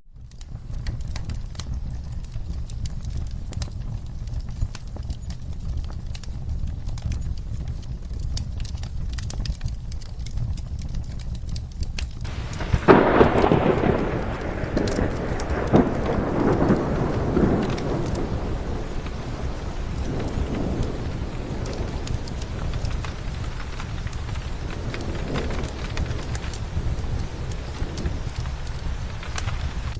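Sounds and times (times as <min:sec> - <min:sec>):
wood fire crackling: 0:00.0 - 0:29.9
rain falling: 0:00.1 - 0:29.9
thunderclap rolling: 0:12.2 - 0:29.9.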